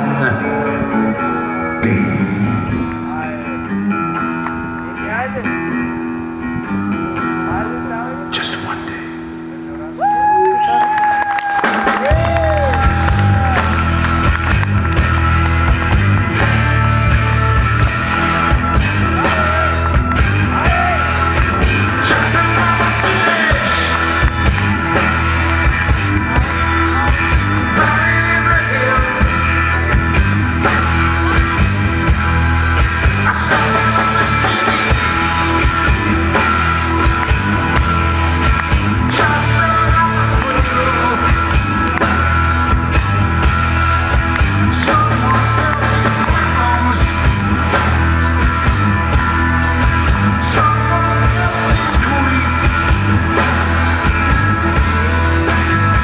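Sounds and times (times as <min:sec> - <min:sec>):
live rock band playing: 0:00.0 - 0:56.0
drums steady beat: 0:11.6 - 0:56.0.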